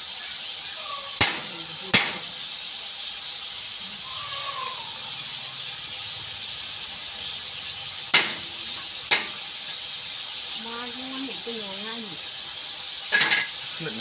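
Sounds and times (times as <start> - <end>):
chicken sizzling in oil: 0.0 - 14.0
spatula knocking on wok: 1.2 - 2.3, 8.1 - 8.5, 9.1 - 9.4.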